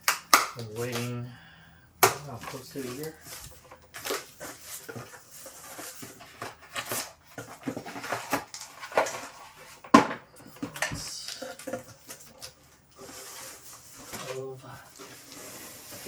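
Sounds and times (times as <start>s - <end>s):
packaging rustling: 0.0s - 16.0s.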